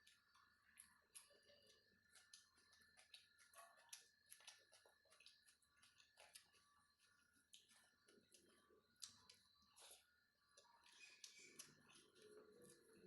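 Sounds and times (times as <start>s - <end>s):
wet chewing mouth clicks: 10.8s - 13.0s.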